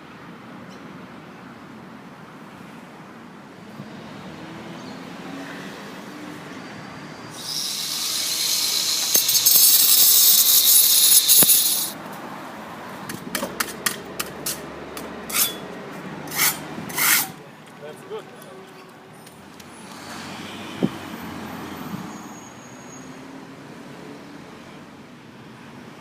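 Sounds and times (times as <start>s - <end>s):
loud steady hiss: 7.3s - 12.0s
short scraping strokes: 7.4s - 12.0s, 15.3s - 15.6s, 16.3s - 17.4s.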